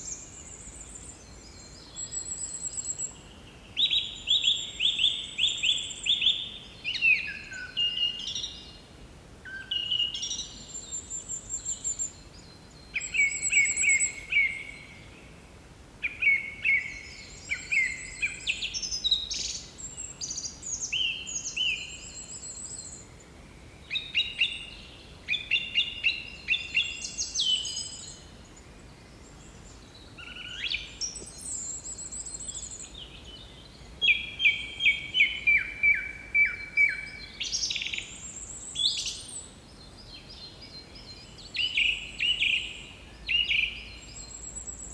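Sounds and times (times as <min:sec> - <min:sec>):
songbirds chirping and trilling: 0:16.0 - 0:44.9.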